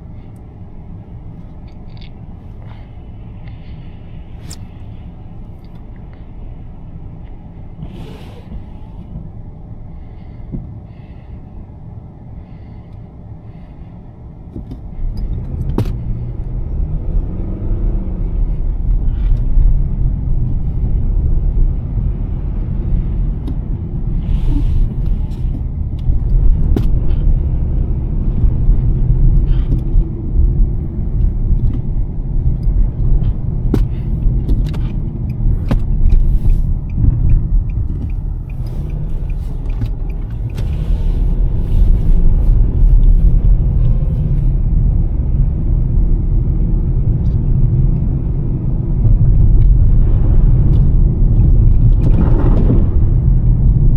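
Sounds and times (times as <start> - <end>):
car driving on snowy road: 0.0 - 53.9.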